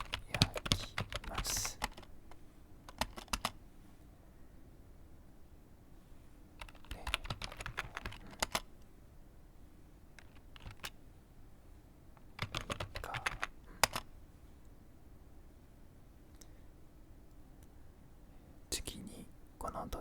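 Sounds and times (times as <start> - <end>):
computer keyboard typing: 0.0 - 3.6, 6.6 - 8.8, 10.1 - 11.0, 12.2 - 14.1.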